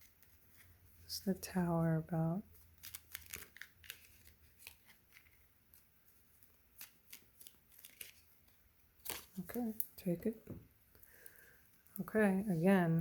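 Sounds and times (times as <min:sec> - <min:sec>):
cards being shuffled: 0:02.6 - 0:09.9.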